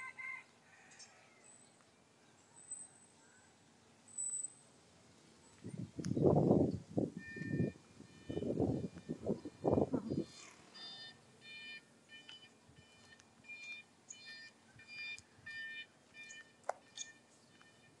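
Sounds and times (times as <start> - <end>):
small bird chirping: 13.5 - 17.8.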